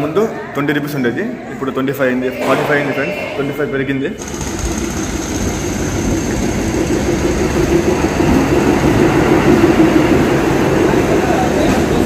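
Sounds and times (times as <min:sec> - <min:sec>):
train rumbling into station: 0:04.2 - 0:12.0.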